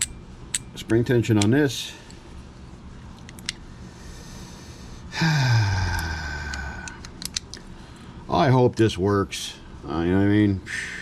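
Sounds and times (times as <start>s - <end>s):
man sighing: 5.1s - 7.0s
handling clicks: 6.5s - 7.6s.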